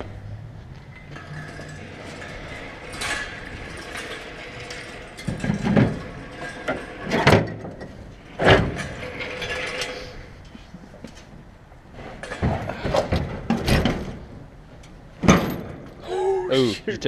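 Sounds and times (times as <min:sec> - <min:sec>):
metal equipment clunking and rattling: 0:00.9 - 0:10.5, 0:12.0 - 0:16.0.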